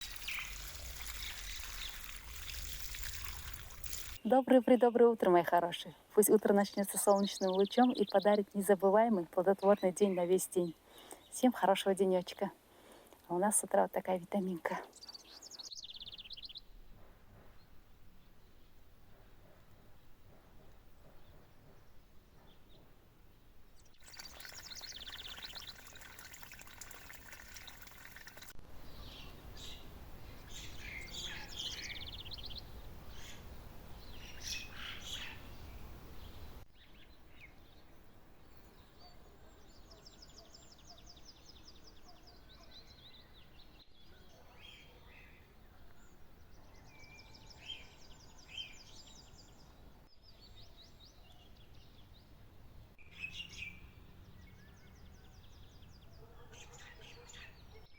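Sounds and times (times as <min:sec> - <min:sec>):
songbirds chirping and singing: 0:28.9 - 0:37.9, 0:53.0 - 0:57.8.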